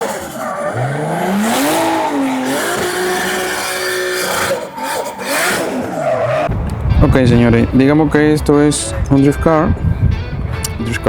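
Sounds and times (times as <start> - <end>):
car engine revving hard: 0.0 - 6.5
tyres squealing: 0.0 - 6.5.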